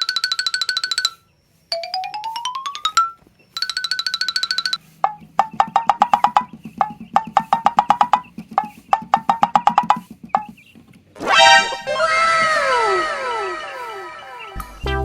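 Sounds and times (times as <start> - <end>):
wood block taps: 5.0 - 11.0
rising swoop effect: 11.2 - 15.0.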